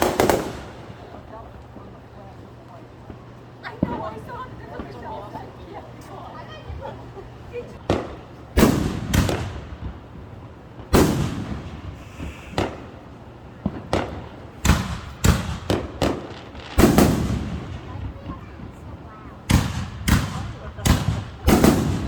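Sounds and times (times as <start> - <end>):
fireworks bangs: 0.0 - 5.7, 6.6 - 22.0.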